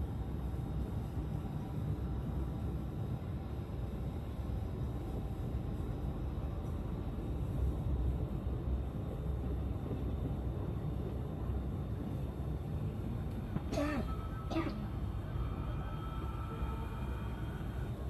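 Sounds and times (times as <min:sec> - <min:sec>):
train rumbling from inside coach: 0:00.0 - 0:18.0.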